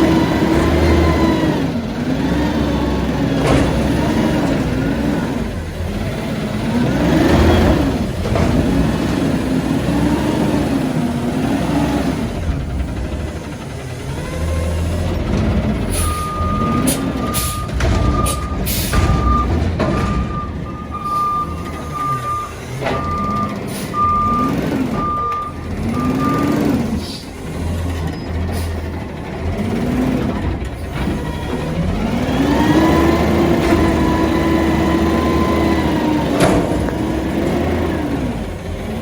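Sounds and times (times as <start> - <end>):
diesel engine running: 0.0 - 39.0
backup alarm beeping: 16.1 - 26.7.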